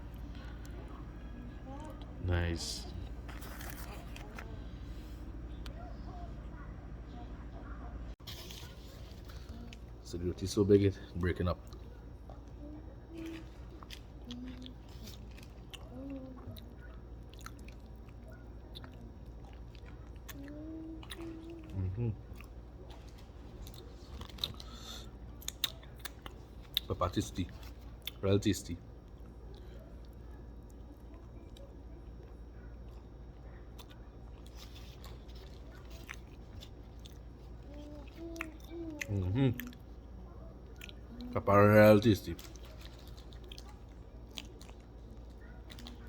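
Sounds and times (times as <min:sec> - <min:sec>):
man chewing: 0:13.3 - 0:26.9, 0:33.7 - 0:40.1, 0:40.7 - 0:41.2, 0:42.3 - 0:46.0
low voice hums: 0:20.4 - 0:22.3, 0:37.7 - 0:39.8.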